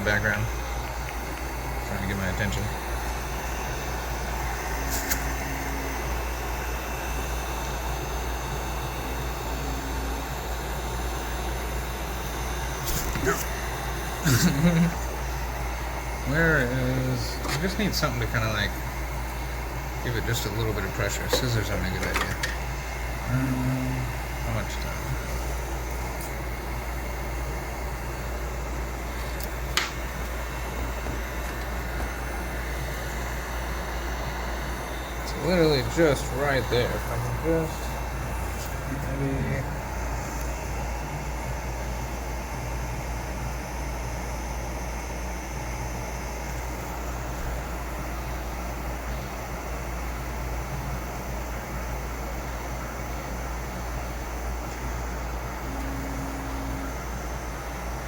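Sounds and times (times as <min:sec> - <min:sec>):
heat gun blowing air: 0:04.8 - 0:05.3
sharp click: 0:04.9 - 0:05.3.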